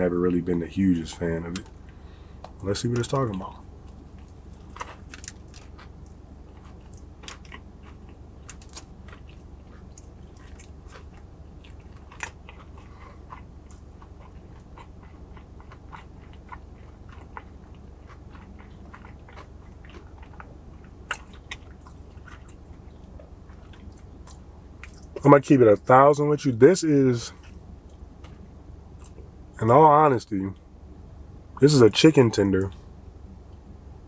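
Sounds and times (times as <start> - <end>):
steady low hum: 0.0 - 34.0
person chewing with wet clicks: 1.5 - 25.3, 27.4 - 29.3.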